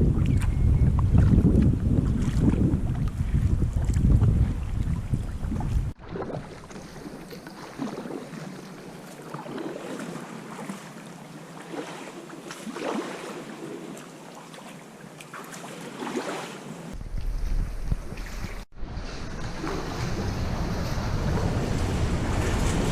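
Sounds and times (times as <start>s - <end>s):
wind buffeting microphone: 0.0s - 7.1s, 16.9s - 22.9s
water splashing around kayak: 0.0s - 22.9s.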